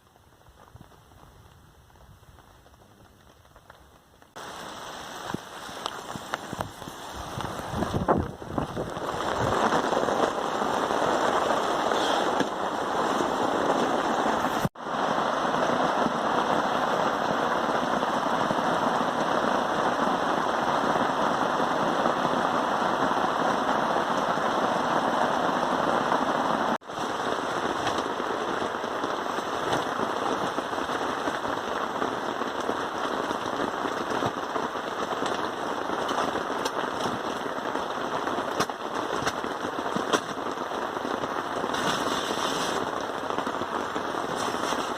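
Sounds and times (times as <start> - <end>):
heavy rain pattering: 0.0 - 44.9.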